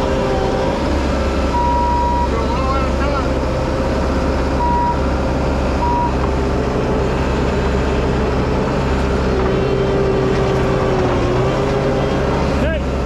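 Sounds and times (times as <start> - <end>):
diesel engine running under load: 0.0 - 13.0
backup alarm beep: 1.5 - 2.4, 4.6 - 5.0, 5.8 - 6.2.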